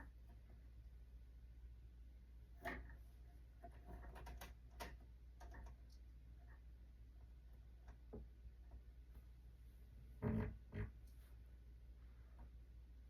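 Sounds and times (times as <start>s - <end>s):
faint clicks and taps: 2.6s - 9.3s.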